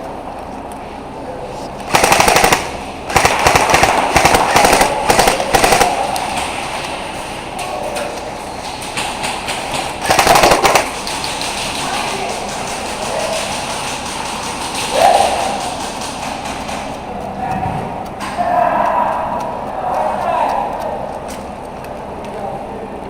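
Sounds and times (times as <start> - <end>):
airsoft gun automatic bursts: 1.9 - 7.0, 8.8 - 16.2.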